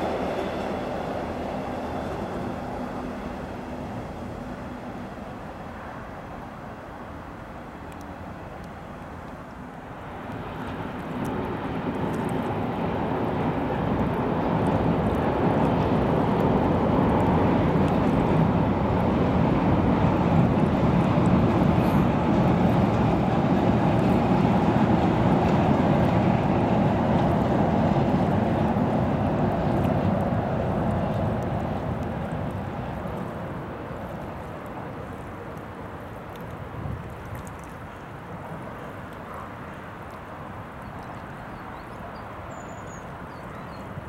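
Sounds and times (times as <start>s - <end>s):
train crossing steel bridge: 0.0s - 36.7s.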